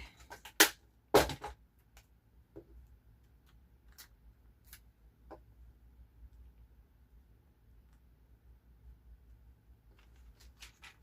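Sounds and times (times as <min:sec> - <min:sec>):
paper and stickers being handled: 0:09.9 - 0:11.0.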